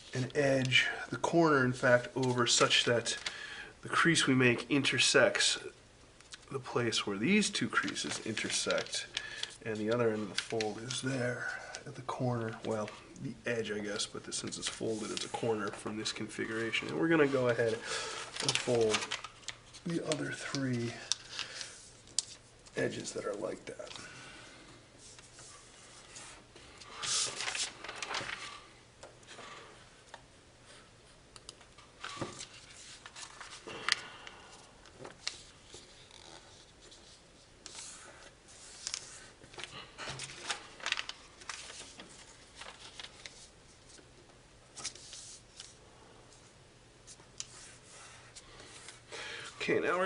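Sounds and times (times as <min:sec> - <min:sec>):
foil crinkling and rustling: 0:07.6 - 0:11.0, 0:16.6 - 0:21.7, 0:27.2 - 0:28.5, 0:38.8 - 0:43.4.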